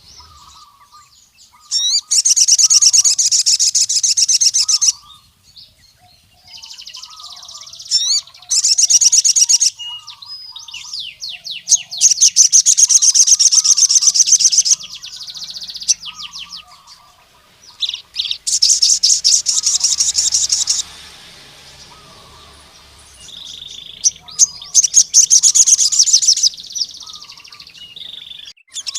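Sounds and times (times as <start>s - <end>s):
bird singing chattering trills: 0.0s - 28.9s.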